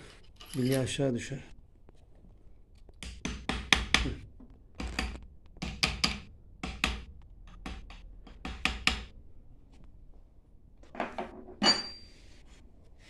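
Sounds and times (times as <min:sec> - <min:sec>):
sharp metallic taps and knocks: 0:02.9 - 0:09.2.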